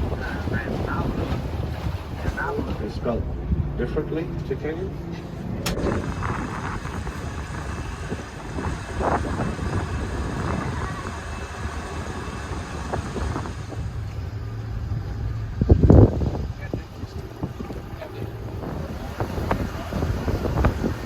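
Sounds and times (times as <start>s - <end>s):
boat motor running: 0.0s - 21.0s
wind buffeting microphone: 0.0s - 21.0s.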